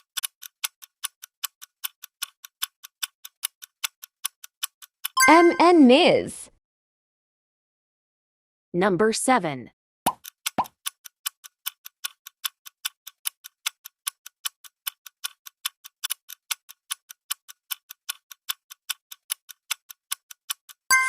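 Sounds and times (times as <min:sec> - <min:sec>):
clock ticking: 0:00.0 - 0:05.8, 0:10.1 - 0:21.0.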